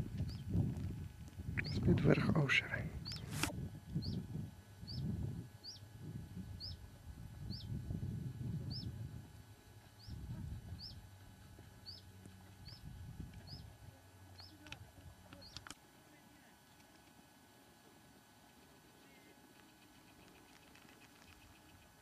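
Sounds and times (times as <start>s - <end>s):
wind buffeting microphone: 0.0s - 2.2s, 2.8s - 11.8s, 12.6s - 13.8s
small bird calling: 3.0s - 3.3s, 3.9s - 5.9s, 6.5s - 6.9s, 7.5s - 7.8s, 8.7s - 9.0s, 10.0s - 11.0s, 11.8s - 15.8s, 18.9s - 22.0s.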